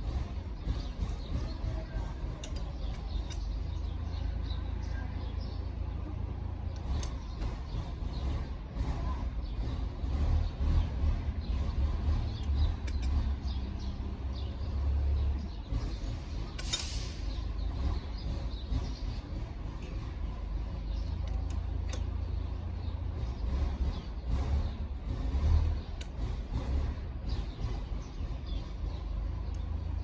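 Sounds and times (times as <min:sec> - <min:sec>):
brief hiss: 0:16.6 - 0:17.3
light clicks: 0:21.2 - 0:22.2.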